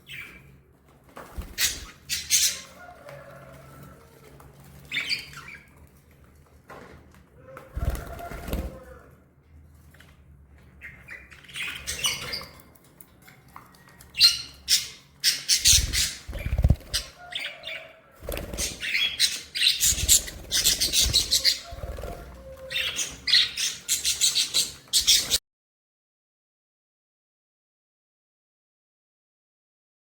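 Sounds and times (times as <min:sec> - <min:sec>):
budgerigars chirping: 0:01.6 - 0:02.8, 0:14.2 - 0:17.9, 0:18.5 - 0:25.4.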